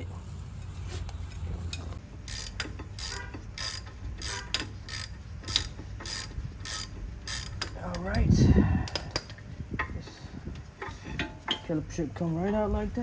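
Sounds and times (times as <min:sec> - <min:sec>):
ratchet wrench clicking: 0:02.2 - 0:08.2, 0:08.9 - 0:09.4.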